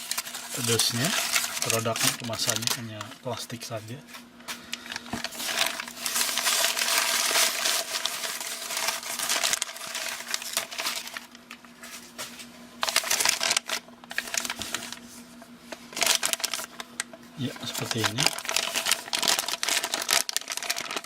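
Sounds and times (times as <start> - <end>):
plastic packaging crinkling: 0.0 - 21.0.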